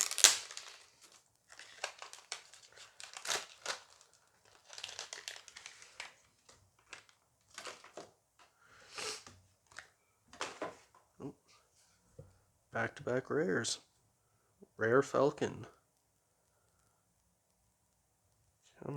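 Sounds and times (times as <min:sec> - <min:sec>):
foil packs crinkling and tearing: 0:00.0 - 0:08.1.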